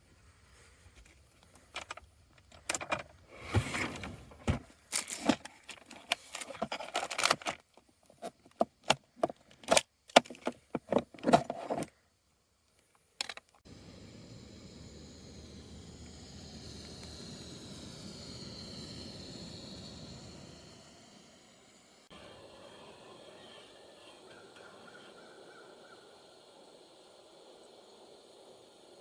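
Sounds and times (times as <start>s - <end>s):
steady hiss: 12.0s - 29.0s.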